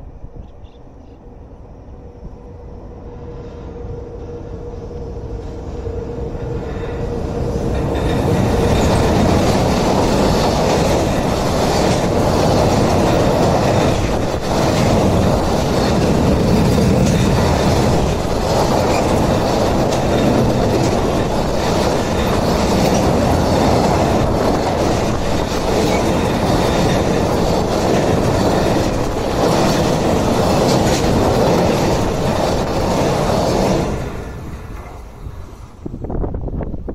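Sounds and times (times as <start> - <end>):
freight train rumbling over bridge: 0.0 - 36.9
wheels clacking over rail joints: 6.6 - 35.4.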